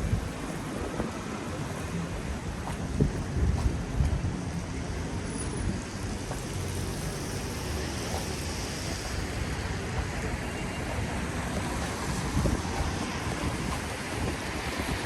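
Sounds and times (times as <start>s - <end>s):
traffic noise: 0.0s - 15.0s
rain: 3.8s - 15.0s
tyres hissing on wet road: 4.4s - 15.0s.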